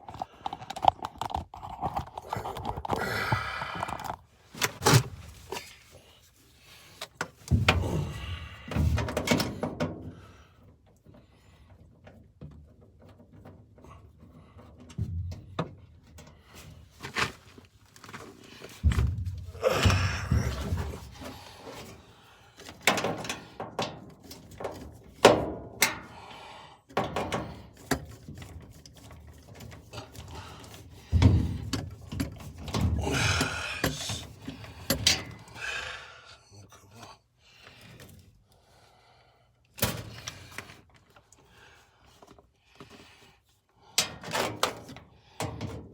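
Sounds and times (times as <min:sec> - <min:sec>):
knocks clunks and clicks: 0:26.9 - 0:35.6.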